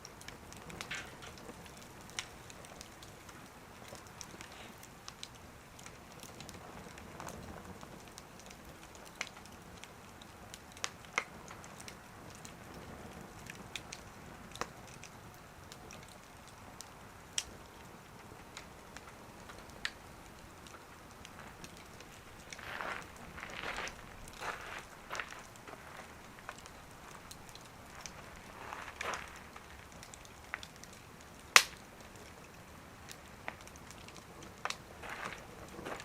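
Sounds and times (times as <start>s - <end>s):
wood fire crackling and popping: 0.0s - 36.0s.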